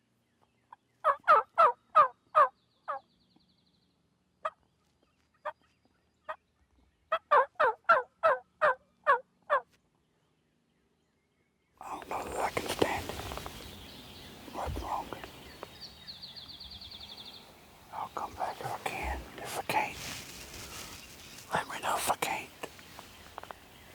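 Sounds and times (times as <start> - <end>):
turkey yelps: 1.0 - 3.0, 7.1 - 9.6.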